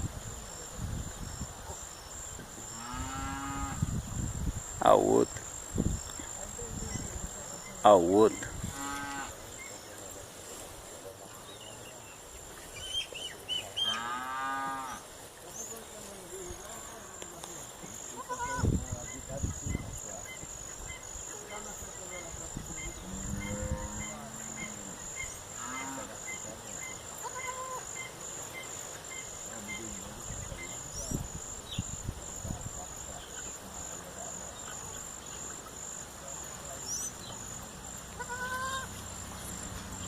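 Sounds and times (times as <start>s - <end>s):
small birds chirping: 4.9s - 14.2s, 14.8s - 40.0s
farm animal calling: 6.9s - 9.8s, 12.6s - 15.0s, 17.9s - 31.1s, 36.7s - 39.0s.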